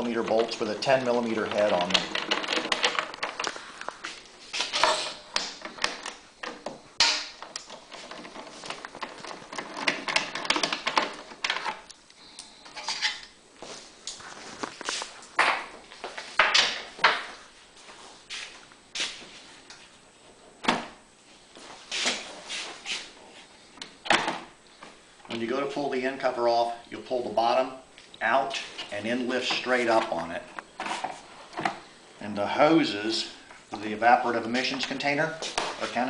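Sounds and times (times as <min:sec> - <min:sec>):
metal tools clattering: 0:04.6 - 0:05.3.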